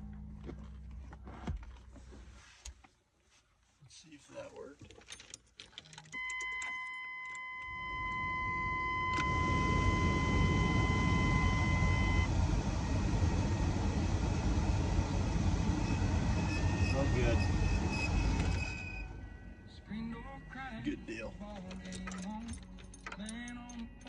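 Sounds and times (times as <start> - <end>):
electronic warning tone: 6.2 - 13.8, 15.6 - 19.6
blower fan air rushing: 8.1 - 19.2.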